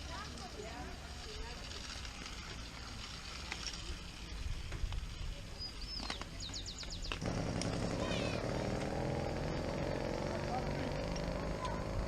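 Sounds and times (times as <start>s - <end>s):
low outdoor rumble: 7.1s - 12.0s
loud low rumbling noise: 7.2s - 12.0s.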